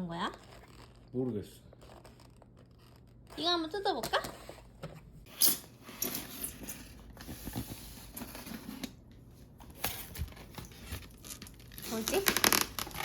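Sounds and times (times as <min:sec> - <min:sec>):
packaging rustling and tearing: 0:09.7 - 0:13.0.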